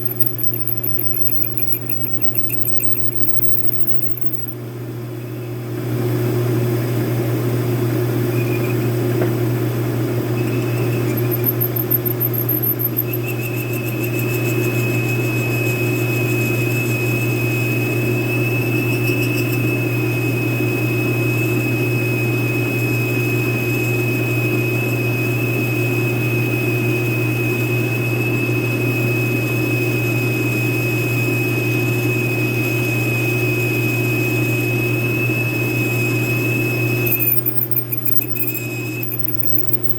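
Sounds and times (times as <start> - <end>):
high-pitched cutting squeal: 0.0 - 4.6, 10.3 - 20.7, 36.9 - 39.9.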